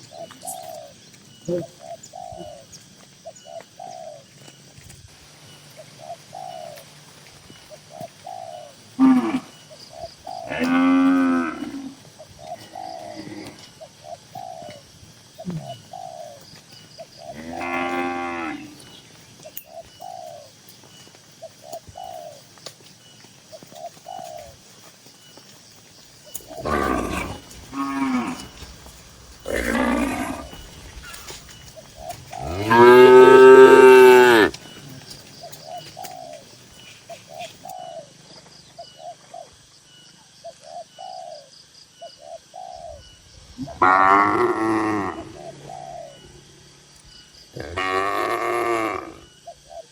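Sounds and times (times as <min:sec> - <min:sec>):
cows mooing: 0:09.0 - 0:09.6, 0:10.4 - 0:12.0, 0:17.3 - 0:18.8, 0:26.6 - 0:28.7, 0:29.4 - 0:30.7, 0:32.3 - 0:34.6, 0:43.7 - 0:45.4, 0:47.6 - 0:49.3.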